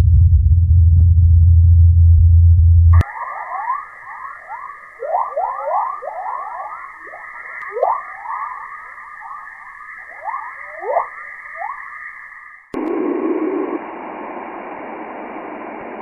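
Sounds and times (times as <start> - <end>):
falling whistle-like tones: 3.0 - 12.8
steady high hiss: 3.0 - 16.0
steady rushing noise: 3.0 - 16.0.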